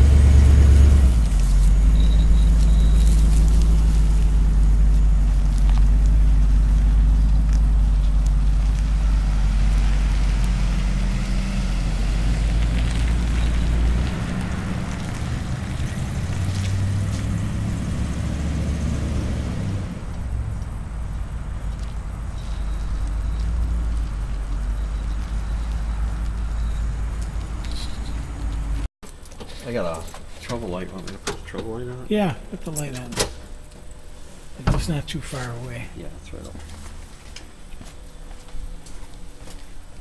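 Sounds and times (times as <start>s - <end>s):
car engine pulling away: 0.0s - 28.9s.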